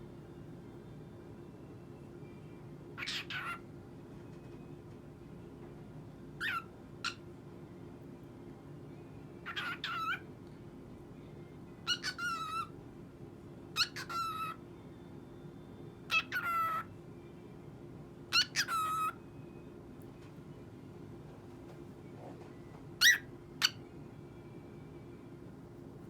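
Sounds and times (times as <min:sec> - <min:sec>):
cockatiel warbling calls: 0:03.0 - 0:03.6, 0:06.4 - 0:07.2, 0:09.4 - 0:10.3, 0:11.8 - 0:12.7, 0:13.8 - 0:14.6, 0:16.1 - 0:16.9, 0:18.3 - 0:19.2, 0:23.0 - 0:23.8.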